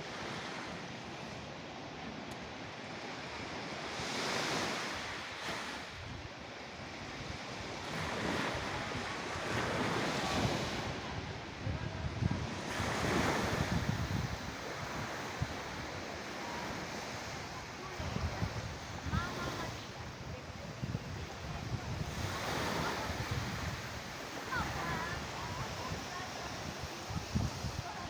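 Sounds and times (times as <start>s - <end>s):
sea waves breaking: 0.0s - 28.0s.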